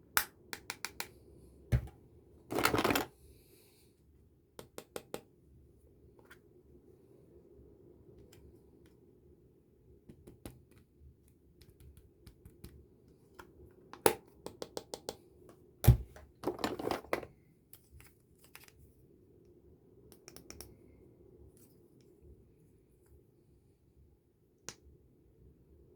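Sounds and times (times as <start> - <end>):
plastic clicks and taps: 0.6 - 1.2.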